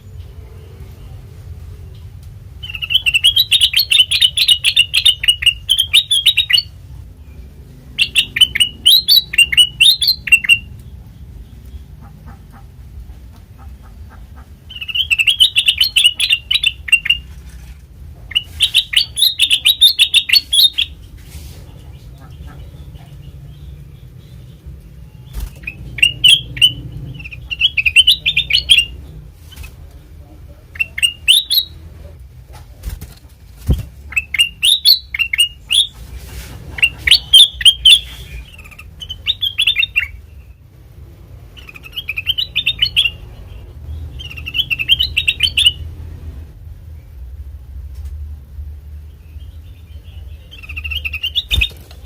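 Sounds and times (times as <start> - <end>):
faint low hum: 0.0 - 52.0
bulbul singing chirping notes: 2.6 - 11.6, 14.7 - 17.3, 18.3 - 21.0, 22.8 - 29.1, 30.8 - 31.8, 34.1 - 36.0, 36.8 - 40.6, 41.6 - 45.9.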